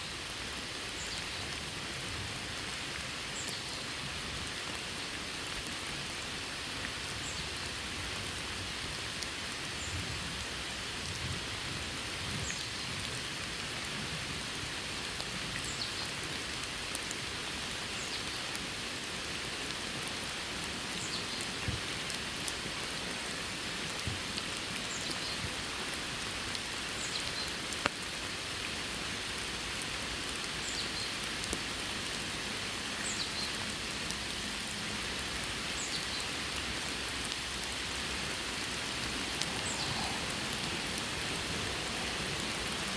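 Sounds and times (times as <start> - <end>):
steady rain: 0.0 - 42.9.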